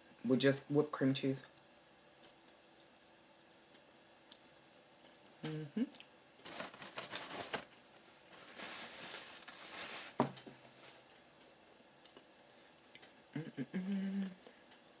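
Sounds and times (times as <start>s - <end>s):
paper napkin rustling: 6.4s - 11.1s.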